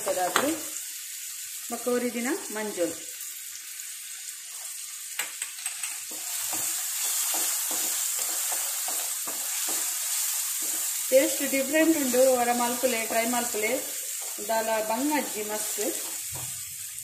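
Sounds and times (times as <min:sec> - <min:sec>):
onions sizzling in a pan: 0:00.0 - 0:17.0
spatula stirring and scraping: 0:05.8 - 0:16.9.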